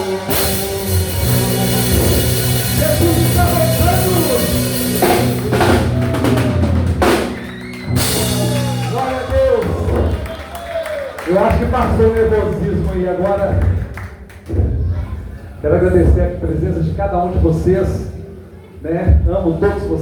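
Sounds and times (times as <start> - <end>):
cymbal crashes: 0.0 - 9.1
rock band playing: 0.0 - 10.4.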